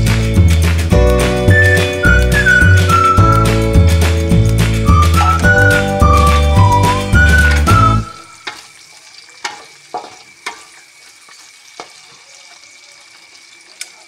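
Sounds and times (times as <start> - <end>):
food sizzling in oil: 6.1 - 14.0.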